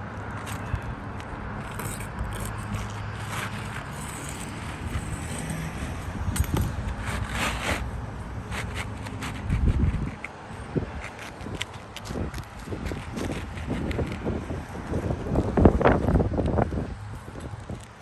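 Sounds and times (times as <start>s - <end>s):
steady low rumble: 0.0s - 11.0s
shingles scraping and crackling: 0.4s - 14.5s.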